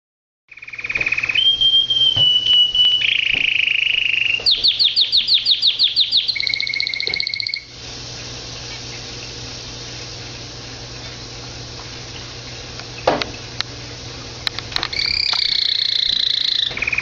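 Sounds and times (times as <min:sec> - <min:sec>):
canary singing: 0:00.5 - 0:07.7, 0:14.9 - 0:17.0.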